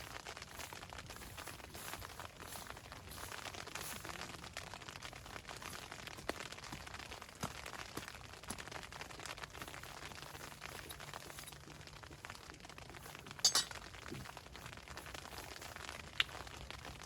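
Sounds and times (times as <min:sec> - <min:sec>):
stones clacking together: 0:13.4 - 0:13.8
sharp bright clink: 0:13.5 - 0:13.8.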